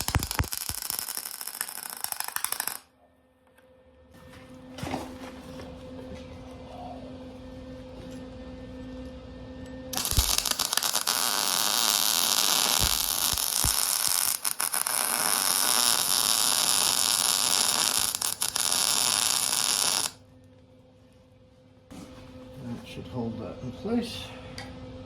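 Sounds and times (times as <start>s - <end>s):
arc welding hiss: 0.0s - 2.8s, 10.0s - 20.2s.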